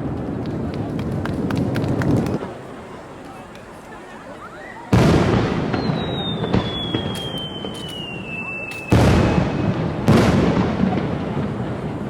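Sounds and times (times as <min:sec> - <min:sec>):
fireworks crack and crackling: 0:00.0 - 0:12.0
falling firework whistle: 0:04.4 - 0:10.7
fireworks booming: 0:04.9 - 0:12.0.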